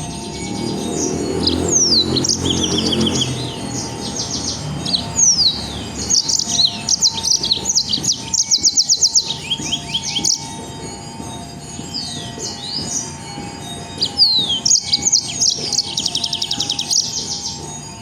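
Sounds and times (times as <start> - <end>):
songbird chattering song: 0.3 - 10.6, 13.8 - 17.6.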